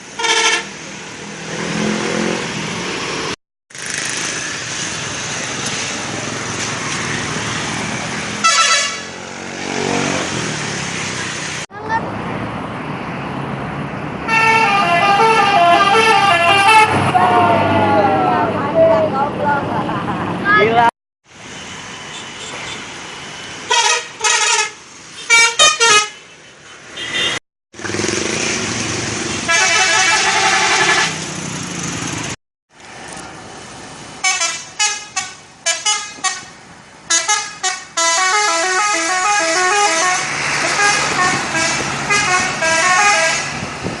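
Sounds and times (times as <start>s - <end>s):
vehicle horn blasts: 0.2s - 0.7s, 8.4s - 9.1s, 23.7s - 26.2s, 29.5s - 31.2s, 34.2s - 36.5s, 37.1s - 43.5s.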